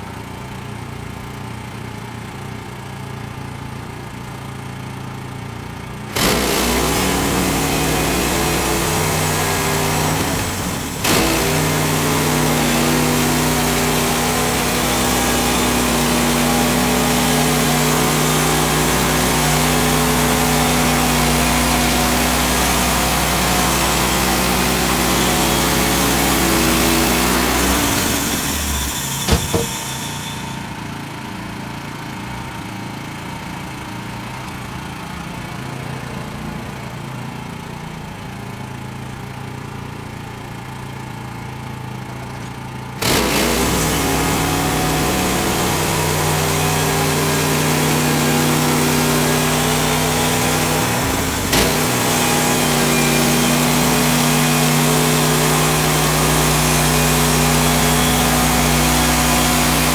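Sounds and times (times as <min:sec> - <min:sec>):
sawmill gas engine: 0:02.2 - 0:37.0, 0:38.0 - 0:59.9
band blade cutting log: 0:06.1 - 0:30.7, 0:43.0 - 0:59.9
sharp knocks: 0:06.2 - 0:30.6.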